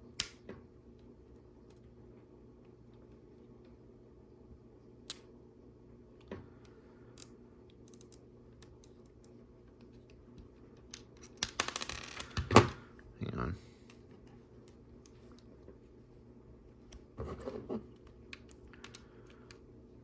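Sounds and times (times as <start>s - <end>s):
plastic pieces clicking: 10.8s - 12.6s.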